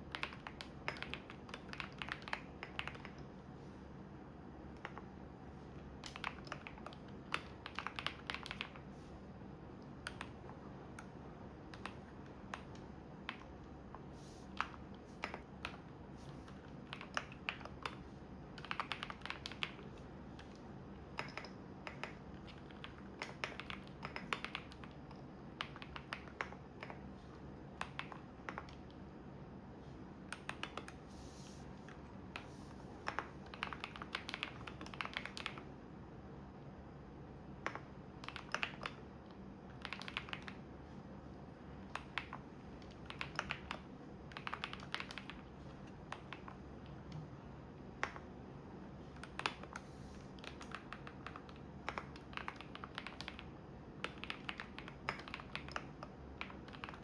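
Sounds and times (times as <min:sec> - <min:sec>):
typing on computer keyboard: 0:00.0 - 0:03.3, 0:04.7 - 0:05.1, 0:06.0 - 0:08.9, 0:10.0 - 0:11.1, 0:11.7 - 0:13.5, 0:14.5 - 0:27.1, 0:27.8 - 0:29.0, 0:30.3 - 0:31.0, 0:32.3 - 0:35.7, 0:37.6 - 0:40.7, 0:41.8 - 0:47.2, 0:49.1 - 0:57.0.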